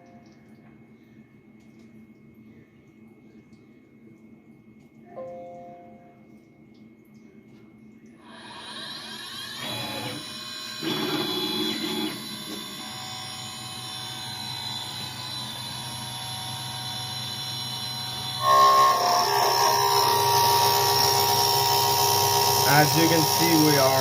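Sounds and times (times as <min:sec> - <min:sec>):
cutter milling metal: 0:08.2 - 0:24.0
router spindle whining: 0:08.3 - 0:24.0.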